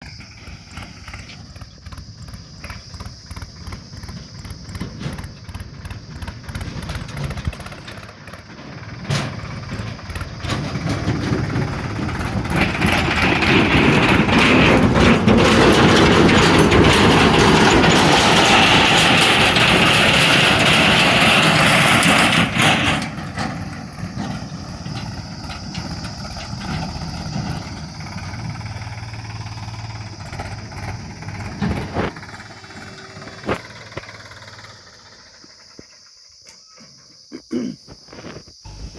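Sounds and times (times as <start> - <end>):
diesel engine running: 0.0 - 36.5, 38.5 - 38.9.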